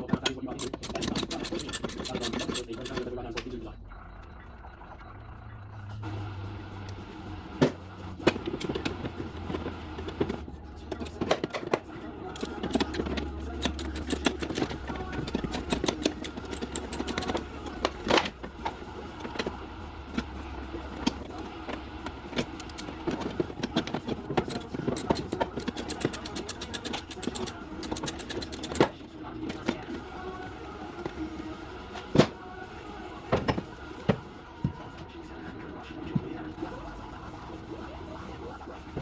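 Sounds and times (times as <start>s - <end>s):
hand tools clicking on metal: 0.0s - 3.2s, 10.8s - 18.3s, 22.3s - 28.9s.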